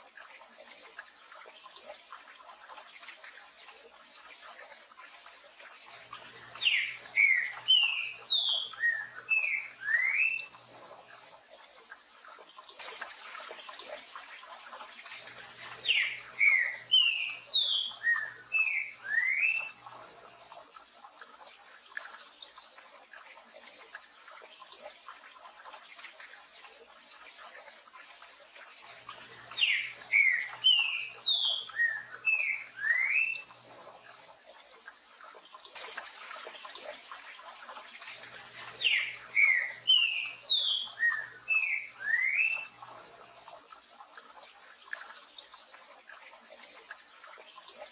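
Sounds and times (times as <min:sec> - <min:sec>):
bird singing slurred whistles: 0:06.6 - 0:10.5, 0:15.9 - 0:19.7, 0:29.6 - 0:33.4, 0:38.8 - 0:42.7.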